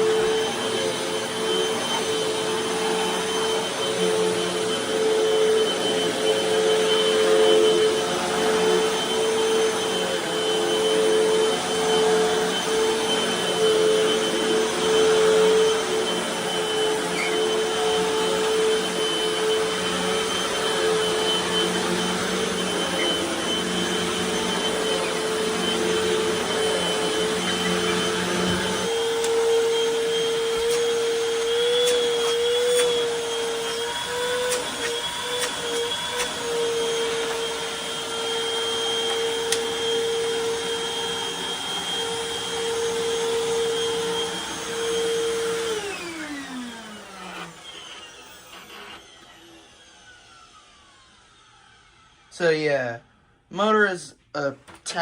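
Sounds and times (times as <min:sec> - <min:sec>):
vacuum cleaner whine: 0:00.0 - 0:55.0.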